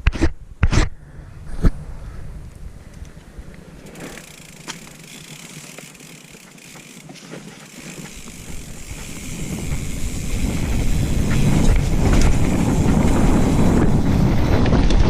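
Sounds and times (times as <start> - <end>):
bike tyres hissing on dirt: 3.5 - 15.0
bike chain and frame rattling: 3.8 - 15.0.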